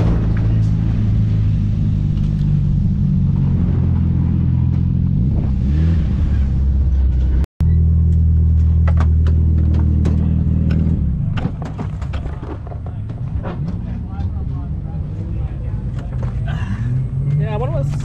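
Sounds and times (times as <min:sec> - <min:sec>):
car engine idling: 0:00.0 - 0:05.2.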